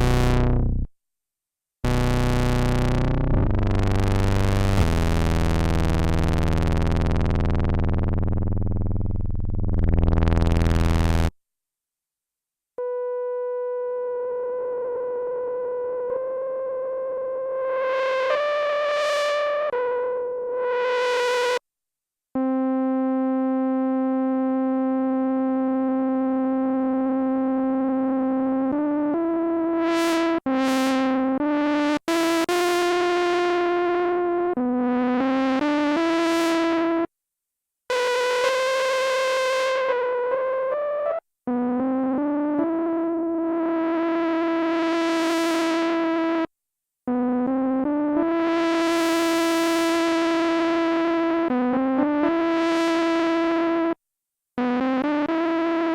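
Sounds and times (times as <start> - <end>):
buzzy analog synthesizer: 0.0 - 0.9, 1.8 - 11.4.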